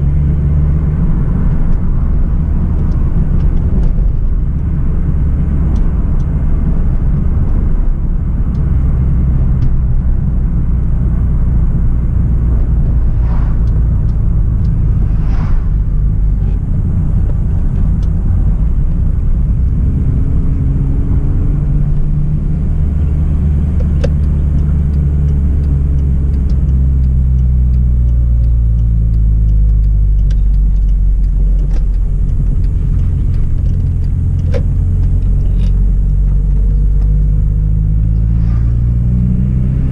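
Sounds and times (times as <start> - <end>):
car engine droning: 0.0 - 39.9
road noise: 0.0 - 39.9.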